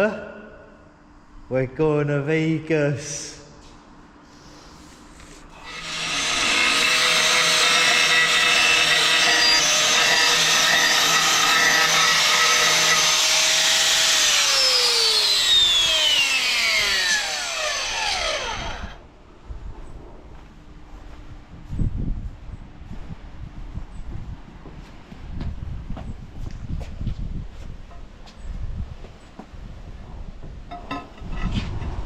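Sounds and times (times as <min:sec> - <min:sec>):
power tool motor running: 0:05.6 - 0:19.0.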